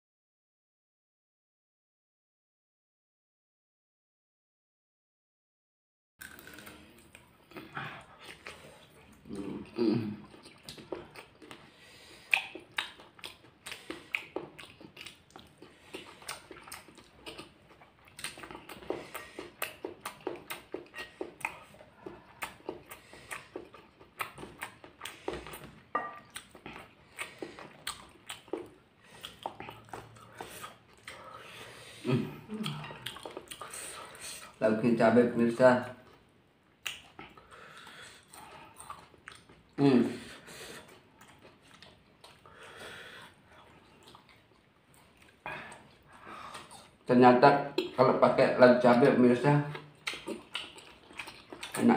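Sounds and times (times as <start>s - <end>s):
crunchy chewing: 6.2s - 31.8s, 49.7s - 51.9s
person humming: 9.4s - 10.2s, 32.0s - 33.0s.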